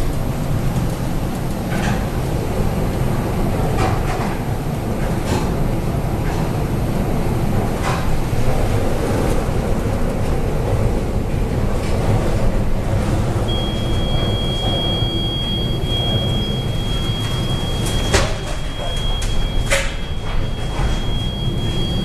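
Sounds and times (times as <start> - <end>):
high-pitched electronic beep: 13.5 - 22.0.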